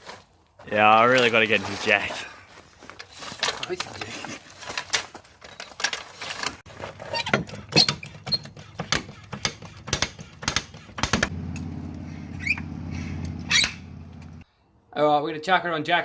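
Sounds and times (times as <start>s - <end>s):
trolley jack clicking and knocking: 7.1s - 11.7s
steady low hum: 11.3s - 14.4s.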